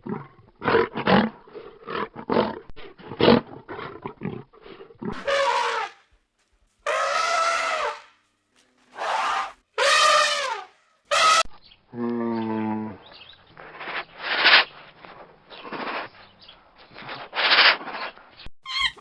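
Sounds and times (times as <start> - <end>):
low drawn-out animal call: 3.0 - 6.0, 6.8 - 8.2, 8.9 - 14.8
noisy animal calls: 5.1 - 6.0, 6.8 - 8.2, 8.9 - 14.8
short pitched animal calls: 6.9 - 8.2.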